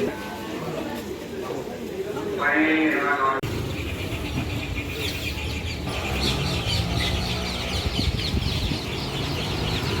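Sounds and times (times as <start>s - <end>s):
small birds chirping: 3.4s - 10.0s.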